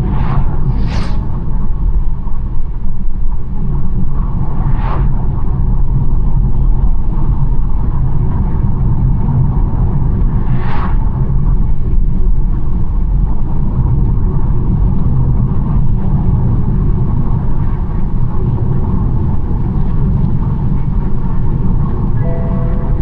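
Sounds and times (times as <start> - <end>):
brief hiss: 0.6 - 1.4.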